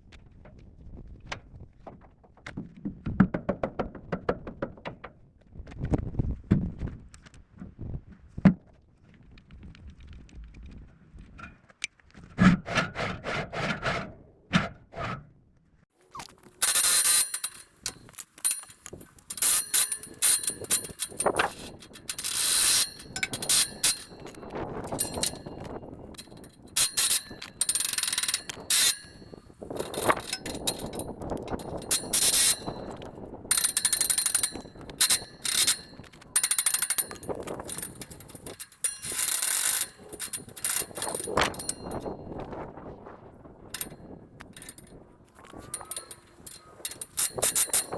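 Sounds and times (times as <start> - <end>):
ratchet wrench clicking: 16.5 - 42.1, 43.8 - 44.9, 45.5 - 47.9.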